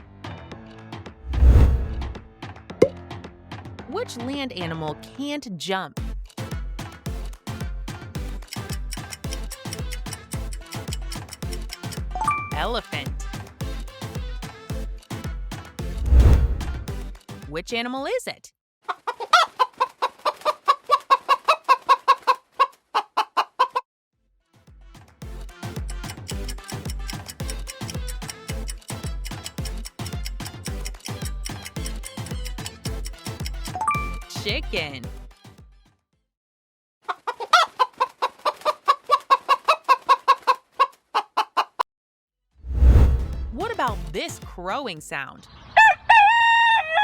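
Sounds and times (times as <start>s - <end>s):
chicken clucking: 18.9s - 23.8s, 37.1s - 41.8s.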